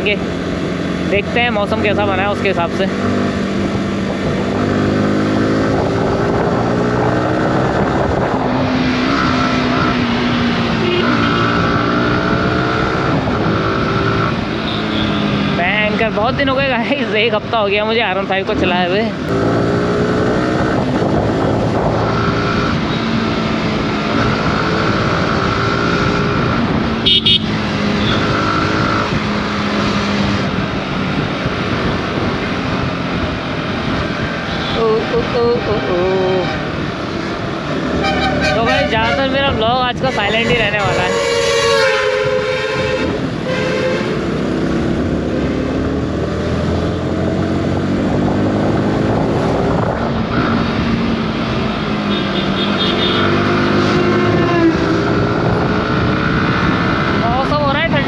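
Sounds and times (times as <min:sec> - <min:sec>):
road and wind noise: 0:00.0 - 0:58.0
horn beeps: 0:27.0 - 0:28.3, 0:38.0 - 0:44.2.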